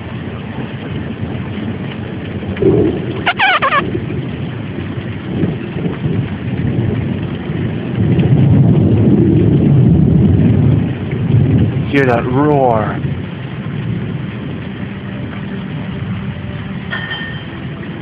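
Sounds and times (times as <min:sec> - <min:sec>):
deep thunder rumble: 0:00.0 - 0:18.0
heavy rain pouring: 0:00.0 - 0:18.0
wavering warbling call: 0:02.6 - 0:03.9.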